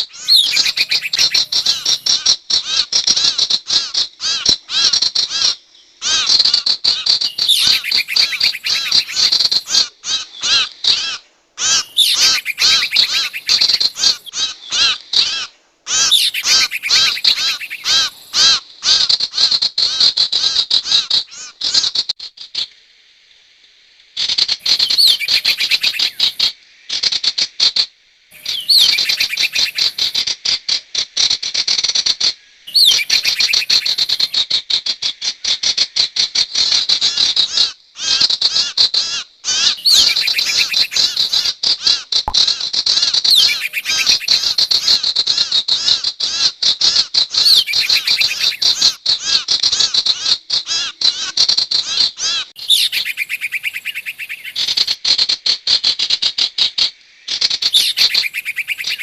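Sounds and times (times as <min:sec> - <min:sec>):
songbird rapid high chirping: 0:00.1 - 0:02.2, 0:07.2 - 0:09.8, 0:11.6 - 0:14.4, 0:15.9 - 0:18.4, 0:24.6 - 0:26.5, 0:28.4 - 0:30.2, 0:32.7 - 0:34.4, 0:39.8 - 0:41.5, 0:43.2 - 0:45.0, 0:47.4 - 0:49.0, 0:52.6 - 0:55.0, 0:57.6 - 0:59.0.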